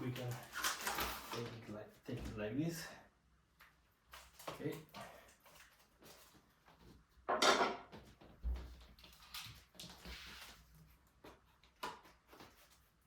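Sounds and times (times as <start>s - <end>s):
packaging scraping rustle: 0.1s - 1.7s.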